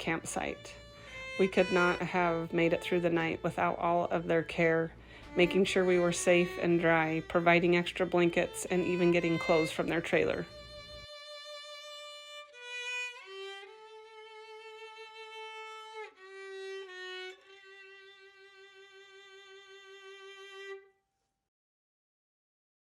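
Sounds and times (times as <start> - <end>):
solo violin slow melody: 0.0 - 20.9.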